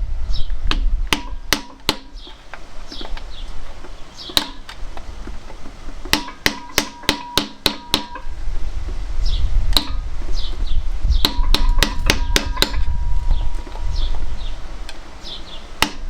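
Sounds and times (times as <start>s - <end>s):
hammer striking steel: 0.7s - 2.4s, 4.3s - 4.8s, 6.1s - 8.4s, 9.8s - 10.0s, 11.2s - 13.9s, 15.8s - 16.0s.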